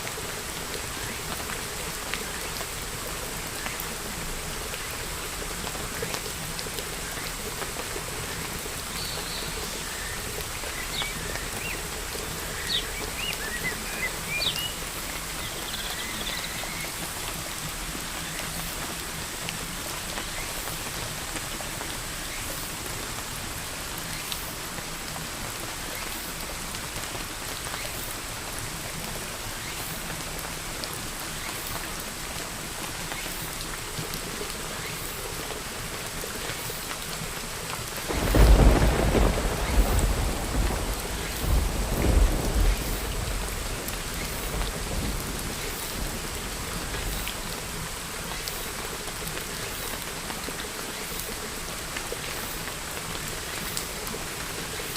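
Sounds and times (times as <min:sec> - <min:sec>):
steady rain falling: 0:00.0 - 0:54.9
thunder clap rumbling: 0:38.1 - 0:46.4.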